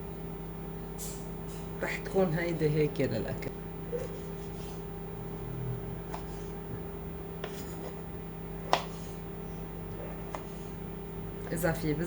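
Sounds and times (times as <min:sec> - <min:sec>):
steady background hum: 0:00.0 - 0:12.0
knife scrape: 0:06.1 - 0:06.6, 0:07.4 - 0:09.3.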